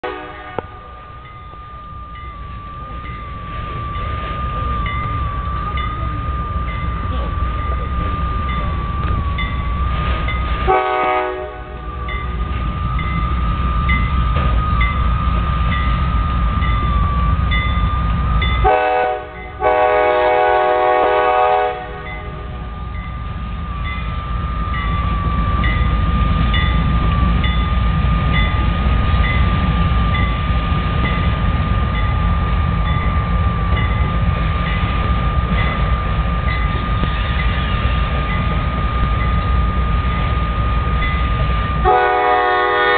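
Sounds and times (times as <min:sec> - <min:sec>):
locomotive horn blasts: 0:00.0 - 0:01.0, 0:10.6 - 0:12.0, 0:18.6 - 0:22.6, 0:41.8 - 0:42.9
crossing bell dinging: 0:00.0 - 0:42.9
freight train rumbling: 0:00.0 - 0:42.9
steady high whine: 0:00.1 - 0:10.8.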